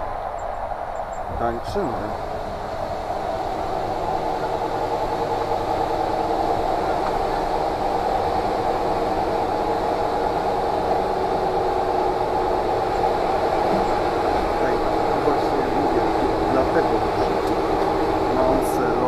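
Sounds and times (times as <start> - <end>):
faint steady tones: 0.0 - 19.0
train coach hum and rumble: 0.0 - 19.0.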